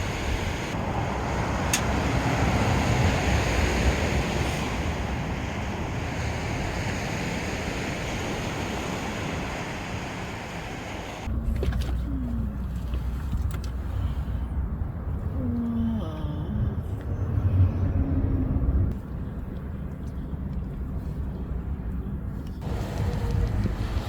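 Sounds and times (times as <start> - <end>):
sea waves washing onto beach: 0.0 - 11.3.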